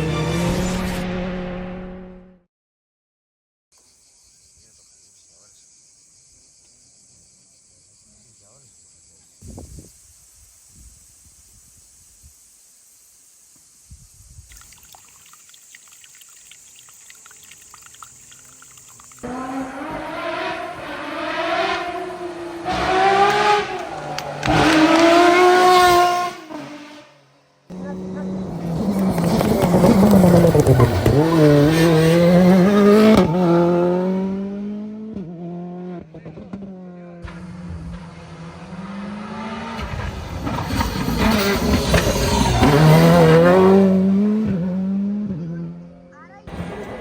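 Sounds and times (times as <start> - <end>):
rally car engine at high revs: 19.2 - 27.1, 27.7 - 47.0.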